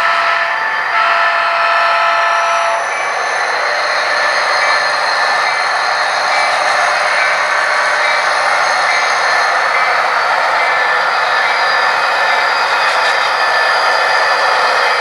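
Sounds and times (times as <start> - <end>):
model train whirring: 0.0 - 15.0.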